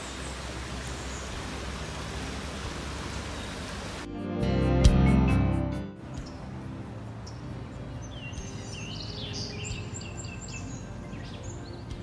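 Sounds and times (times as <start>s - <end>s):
songbirds chirping and whistling: 0.0s - 4.1s, 6.1s - 12.0s.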